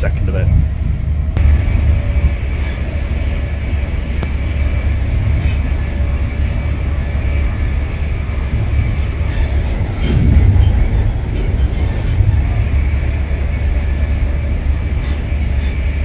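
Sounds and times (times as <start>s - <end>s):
wheels rumbling on rails: 0.0s - 16.0s.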